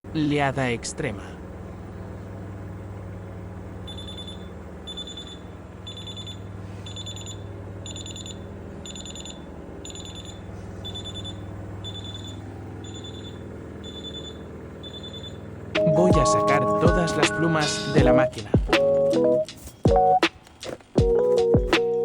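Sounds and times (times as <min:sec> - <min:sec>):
steady low hum: 0:00.1 - 0:21.6
washing machine warning beeps: 0:03.8 - 0:16.8.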